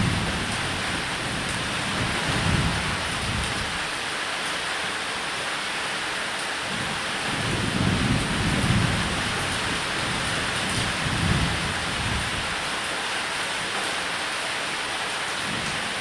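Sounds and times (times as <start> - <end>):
thunder rumbling: 0.0 - 3.8, 7.3 - 12.7
rain on a roof: 0.0 - 16.0.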